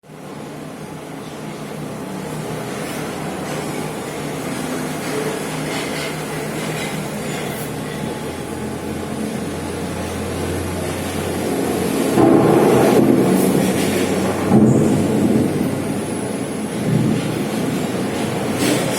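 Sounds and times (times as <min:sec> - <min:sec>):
heavy rain: 0:00.1 - 0:18.9
low mechanical drone: 0:00.1 - 0:18.9.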